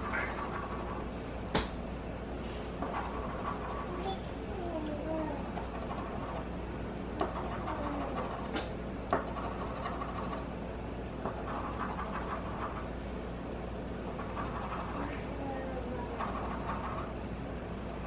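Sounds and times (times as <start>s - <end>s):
scratch ticket being scraped: 7.4s - 8.5s.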